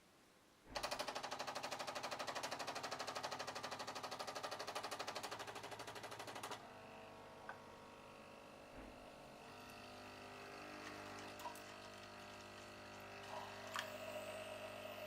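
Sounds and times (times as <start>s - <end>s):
coffee machine humming: 0.7s - 15.0s
coffee machine pump pulsing: 0.8s - 15.0s.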